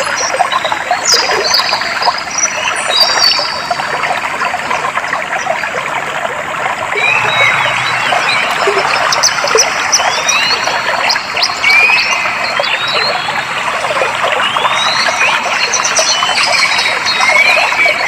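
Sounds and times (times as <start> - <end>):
water trickling: 0.0 - 18.0
birds chirping: 7.0 - 18.0.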